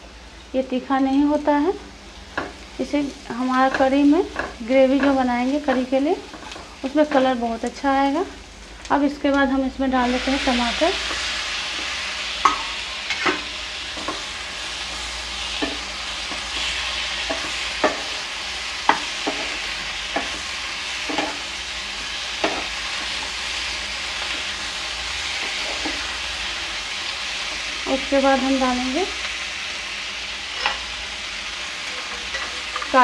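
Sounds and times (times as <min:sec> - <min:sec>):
tomatoes sizzling in hot oil: 0:00.0 - 0:33.0
spatula knocking and scraping pan: 0:03.6 - 0:07.3, 0:11.0 - 0:14.3, 0:15.6 - 0:18.1, 0:18.8 - 0:21.4, 0:22.4 - 0:23.3.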